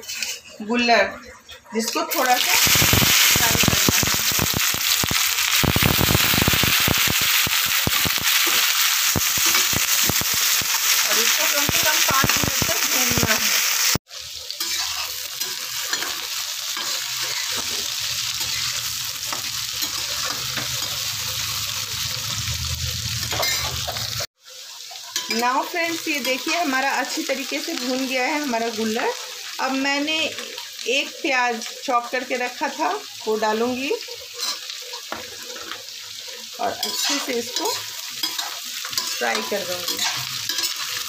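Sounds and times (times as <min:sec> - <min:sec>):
steel spatula stirring: 0:00.0 - 0:00.6, 0:14.2 - 0:21.0, 0:24.6 - 0:25.6, 0:34.3 - 0:41.0
food frying in hot oil: 0:02.1 - 0:41.0.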